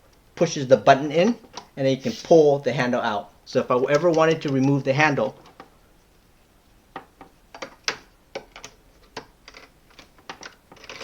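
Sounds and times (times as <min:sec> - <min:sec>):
plastic clicks and knocks: 0:06.9 - 0:11.0.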